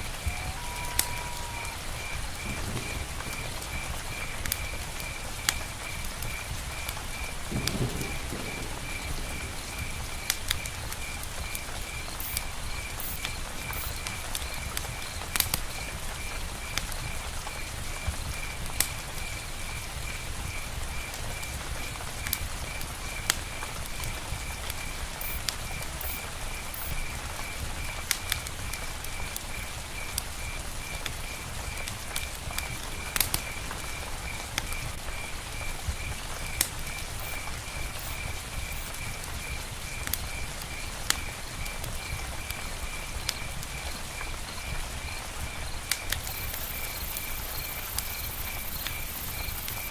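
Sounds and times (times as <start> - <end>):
steady rain: 0.0 - 49.9
high pulsed animal call: 0.2 - 2.1.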